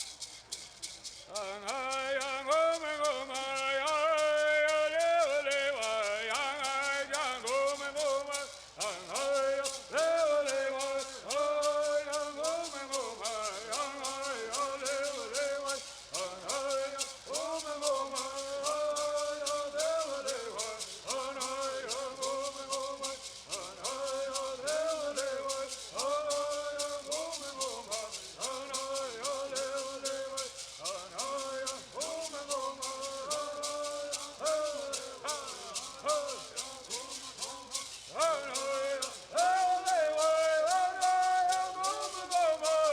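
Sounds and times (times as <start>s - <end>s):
gourd rattles shaking: 0.0s - 42.9s
voices singing in unison: 1.1s - 42.9s.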